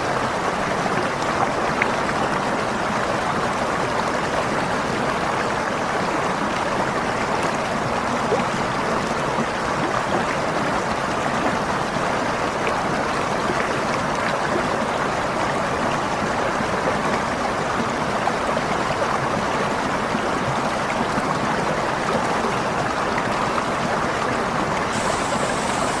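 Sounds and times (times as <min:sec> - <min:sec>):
waterfall rushing: 0:22.1 - 0:26.0.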